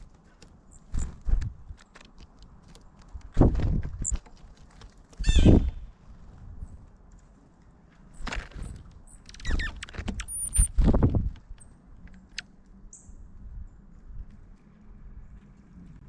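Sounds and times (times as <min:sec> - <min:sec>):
harsh bird calls: 0:05.2 - 0:05.9.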